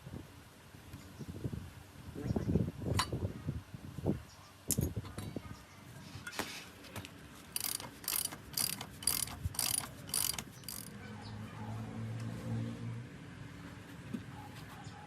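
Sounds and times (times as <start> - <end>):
ratchet wrench ratcheting: 7.6 - 10.9.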